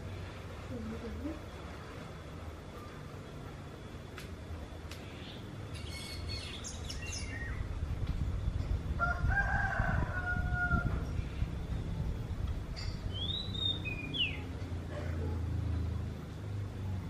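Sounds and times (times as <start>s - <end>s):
bird chirping: 5.0s - 7.8s, 12.8s - 14.6s.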